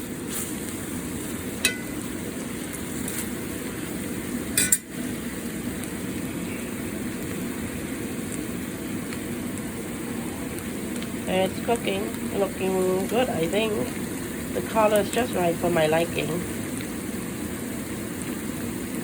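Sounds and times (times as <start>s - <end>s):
chicken sizzling in a pan: 0.0s - 19.0s
metal utensil clinking on pan: 1.6s - 2.0s, 4.6s - 4.9s.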